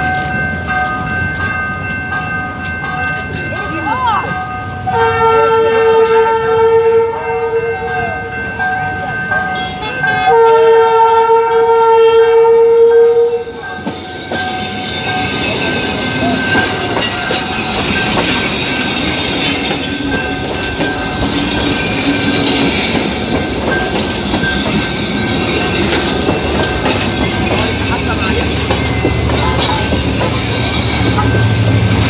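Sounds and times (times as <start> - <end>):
train coaches clattering over rails: 0.0 - 32.0
train horn blast: 4.9 - 8.0, 9.5 - 13.6.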